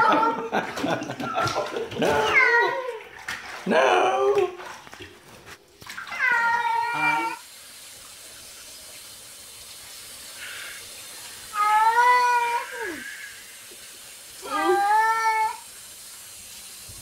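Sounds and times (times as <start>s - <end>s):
cat meowing: 2.1s - 3.0s, 6.1s - 7.4s, 11.6s - 13.2s.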